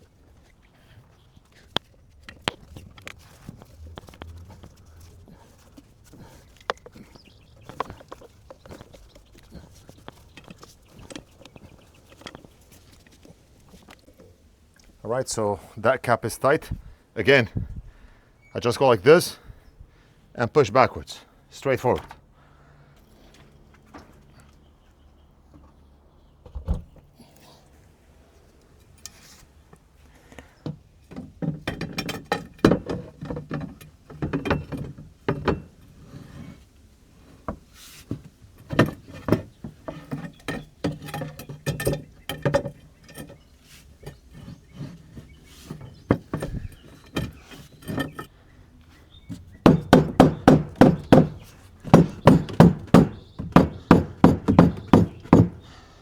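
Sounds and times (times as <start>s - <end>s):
rapid hard knocks on filter cap: 49.7s - 55.6s.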